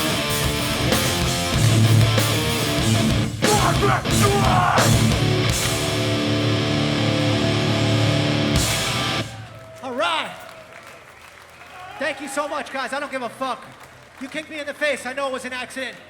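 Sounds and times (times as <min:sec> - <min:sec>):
punk band playing live: 0:00.0 - 0:09.4
long ringing guitar chord: 0:05.2 - 0:09.3.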